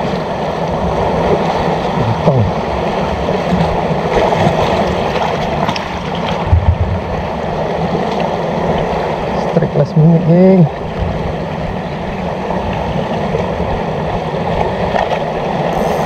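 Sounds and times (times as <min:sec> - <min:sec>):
wind buffeting microphone: 0:00.0 - 0:09.4
sea water rushing: 0:00.0 - 0:16.0
person speaking: 0:02.0 - 0:02.5, 0:15.7 - 0:16.0.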